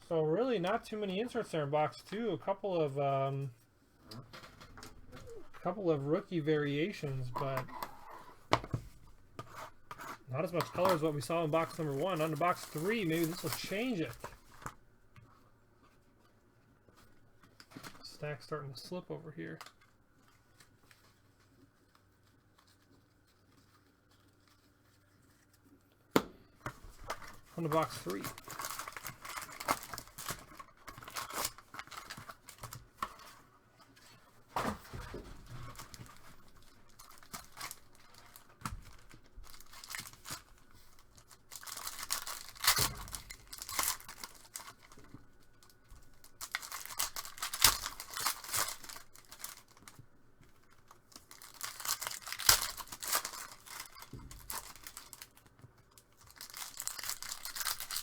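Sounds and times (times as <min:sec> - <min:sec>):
plastic packaging tearing and crinkling: 0:06.6 - 0:14.8, 0:26.9 - 0:33.4, 0:34.5 - 0:58.0.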